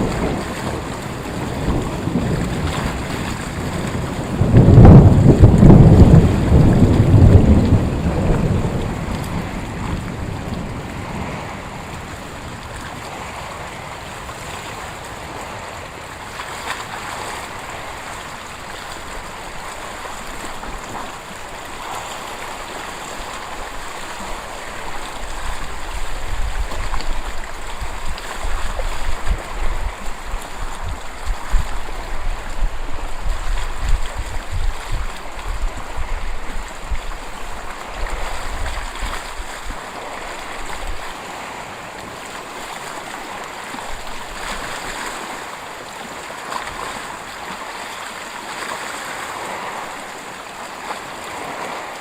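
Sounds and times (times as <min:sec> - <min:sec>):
thunder rumbling: 0:00.0 - 0:12.8
wind buffeting microphone: 0:00.0 - 0:45.5
hiss of wind and water: 0:00.0 - 0:52.0.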